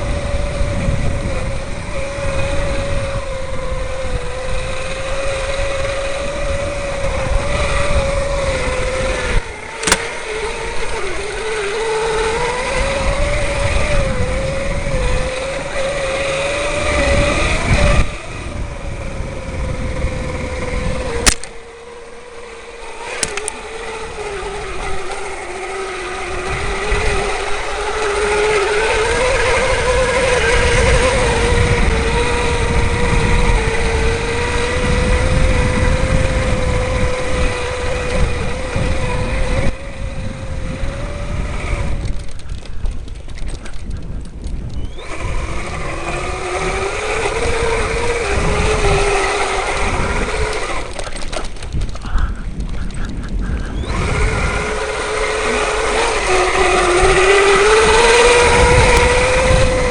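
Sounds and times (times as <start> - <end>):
electric bike motor whining: 0.0 - 59.9
low rumble from rough ground: 0.0 - 59.9
sharp clicks: 9.7 - 11.0, 21.2 - 21.6, 23.0 - 23.6.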